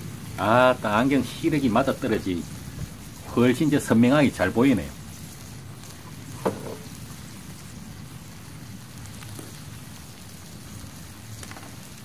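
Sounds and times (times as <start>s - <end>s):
faint crackles: 0.0s - 12.0s
meat sizzling on a grill plate: 0.0s - 12.0s.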